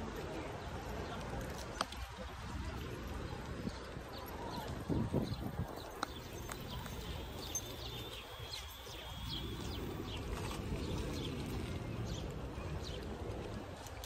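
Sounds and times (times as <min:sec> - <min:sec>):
bicycle rolling on pavement: 0:00.7 - 0:14.0
small birds chirping: 0:03.7 - 0:13.1.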